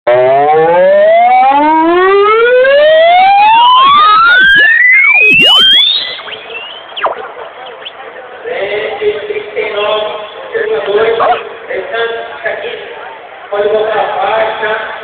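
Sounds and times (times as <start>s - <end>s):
distorted rising tone from loudspeakers: 0.1s - 10.2s.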